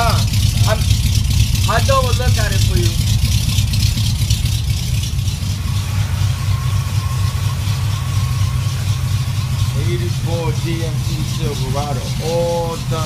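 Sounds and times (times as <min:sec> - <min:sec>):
pickup truck engine idling: 0:00.0 - 0:13.0.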